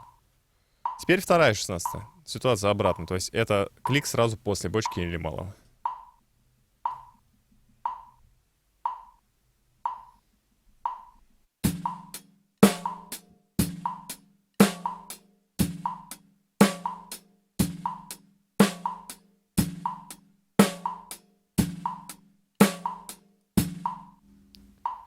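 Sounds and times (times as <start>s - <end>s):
drum kit playing a beat: 0.9s - 2.2s, 2.8s - 3.2s, 3.8s - 6.2s, 6.9s - 7.2s, 7.9s - 8.2s, 8.9s - 9.2s, 9.9s - 10.2s, 10.9s - 24.2s
metronome click: 2.9s - 3.1s, 4.8s - 5.1s, 5.8s - 6.1s, 6.9s - 7.2s, 7.9s - 8.2s.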